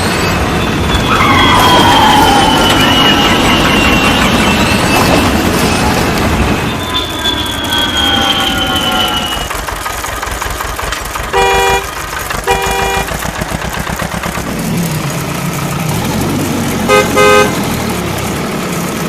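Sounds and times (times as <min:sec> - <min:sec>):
engine-like rumble: 0:00.0 - 0:19.0
vehicle horn honking: 0:11.3 - 0:13.3, 0:16.9 - 0:17.7.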